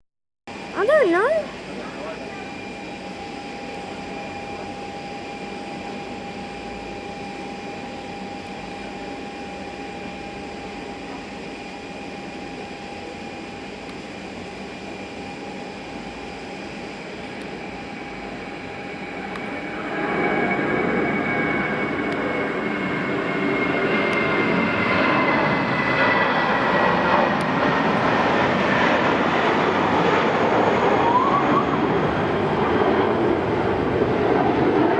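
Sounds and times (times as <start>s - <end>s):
jet engines whining and roaring: 0.5s - 34.9s.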